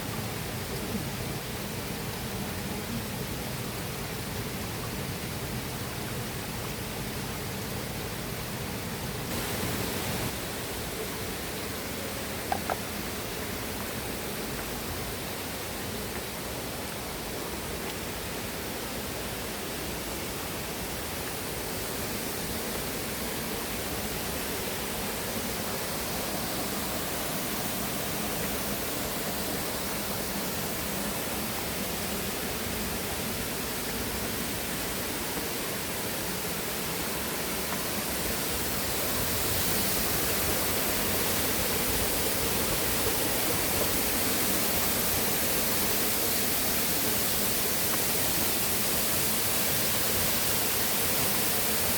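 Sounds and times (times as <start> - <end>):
river water rushing: 9.2 - 51.9.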